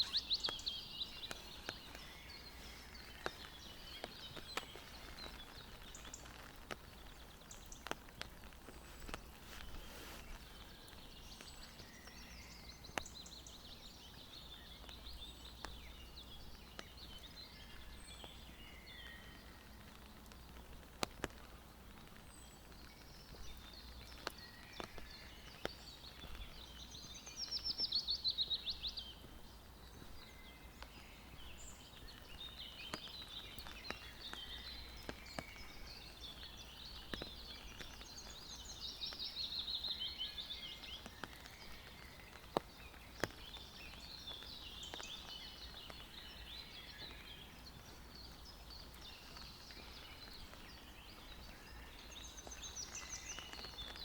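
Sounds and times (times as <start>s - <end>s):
loud rapid bird trill: 0.0s - 0.6s
birds singing and calling: 0.0s - 54.0s.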